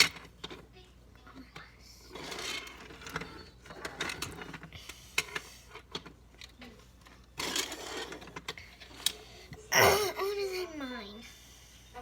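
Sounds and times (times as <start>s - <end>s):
objects scraping: 2.0s - 6.2s, 7.0s - 9.6s.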